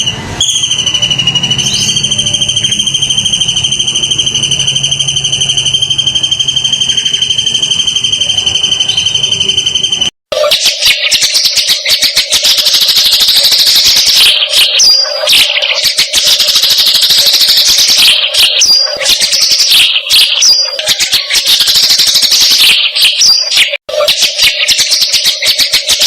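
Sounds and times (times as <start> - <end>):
rapid chattering bird call: 0.4 - 26.0.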